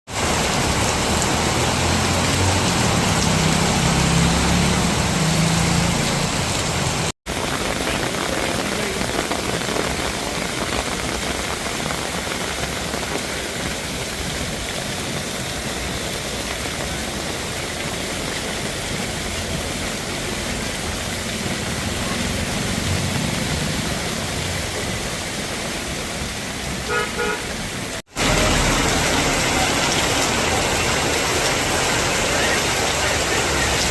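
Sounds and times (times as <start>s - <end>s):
heavy rain hissing: 0.1s - 33.9s
vehicle rumble passing: 0.2s - 7.1s
short horn toot: 26.9s - 27.5s.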